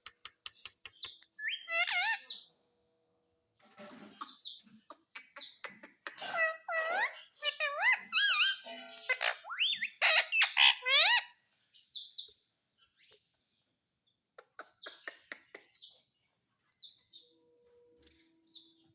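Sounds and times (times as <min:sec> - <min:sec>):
parrot calling: 0:01.4 - 0:02.5, 0:05.2 - 0:11.4.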